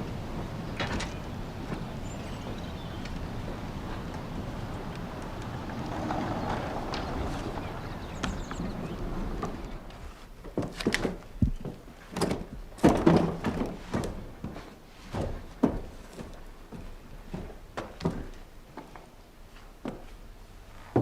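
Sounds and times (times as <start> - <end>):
irregular knocks and thunks: 5.7 - 18.4.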